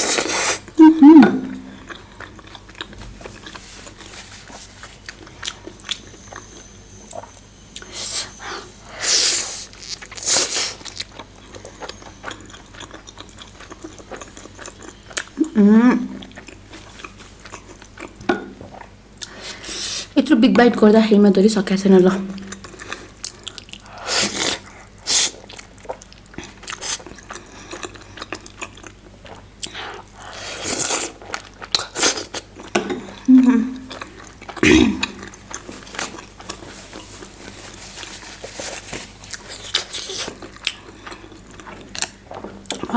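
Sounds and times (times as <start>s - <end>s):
wet chewing and smacking: 1.7s - 4.1s, 4.9s - 8.9s, 9.5s - 15.4s, 22.3s - 42.9s
hissing mouth sounds: 7.8s - 10.8s.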